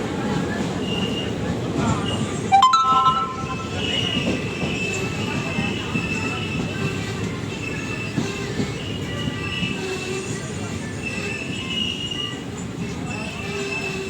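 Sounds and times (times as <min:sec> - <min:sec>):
train rumble: 0:03.6 - 0:14.0.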